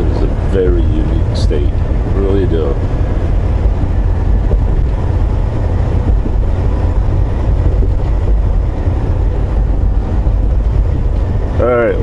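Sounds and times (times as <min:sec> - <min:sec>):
road noise: 0:00.0 - 0:12.0
truck engine drone: 0:00.0 - 0:12.0.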